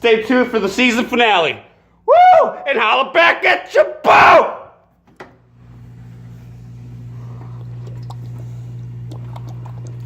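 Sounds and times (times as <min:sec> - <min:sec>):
steady low hum: 0:04.8 - 0:10.0.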